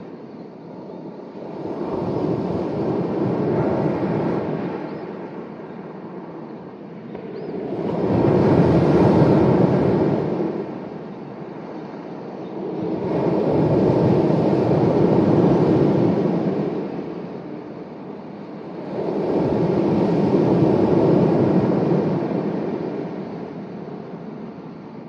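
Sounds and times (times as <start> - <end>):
sea waves breaking on shore: 12.6 - 24.4.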